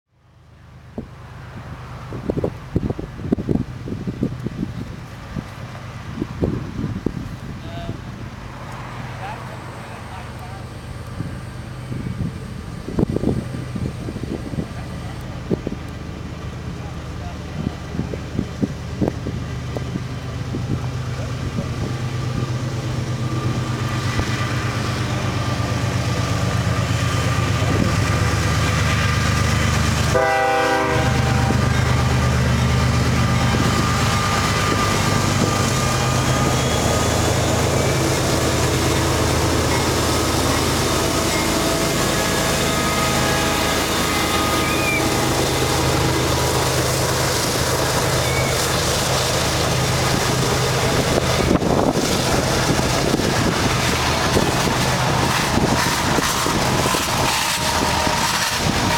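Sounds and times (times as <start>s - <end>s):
diesel locomotives passing: 0.1s - 58.9s
train horn note: 30.0s - 32.2s, 40.8s - 46.8s, 54.3s - 58.9s.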